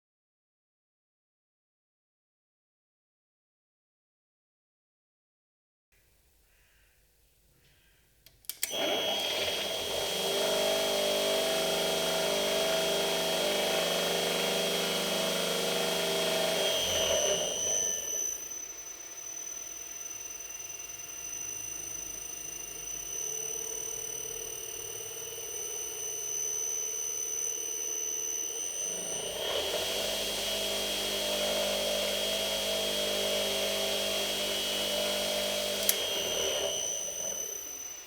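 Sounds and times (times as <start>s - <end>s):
bench grinder motor hum: 8.5s - 38.0s.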